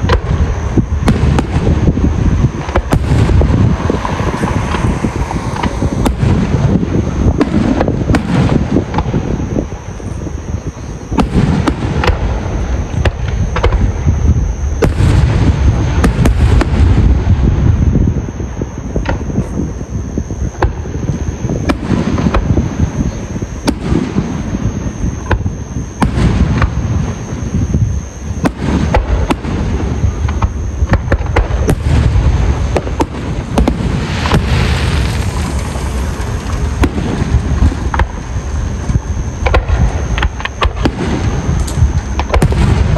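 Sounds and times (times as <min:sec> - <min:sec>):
fireworks bangs and crackles: 0:00.0 - 0:42.9
heavy low rumble: 0:00.0 - 0:42.9.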